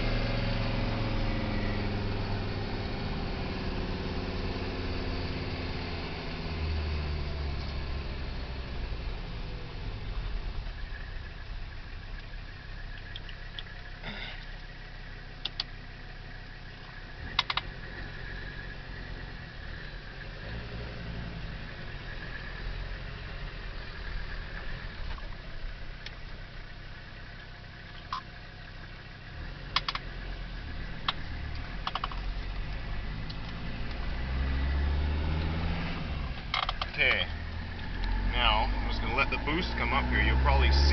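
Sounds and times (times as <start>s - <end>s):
diesel engine running: 0.0s - 40.9s
faint steady whine: 6.6s - 34.2s
sharp clicks or rattles: 17.3s - 17.7s, 29.8s - 30.1s, 31.0s - 34.0s, 36.5s - 37.0s.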